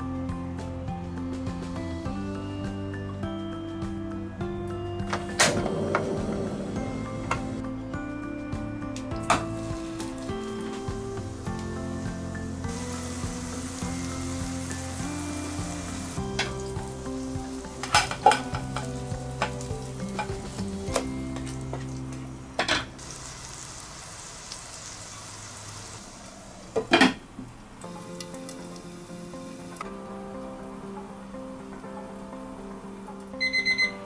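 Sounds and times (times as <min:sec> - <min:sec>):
meat patty sizzling in a pan: 0:09.3 - 0:22.2, 0:22.8 - 0:26.9.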